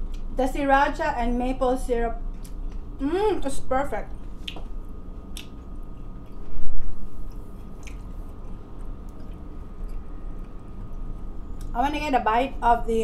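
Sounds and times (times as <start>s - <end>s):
person chewing with wet squishes: 2.3s - 2.9s, 4.2s - 6.4s, 7.2s - 11.8s.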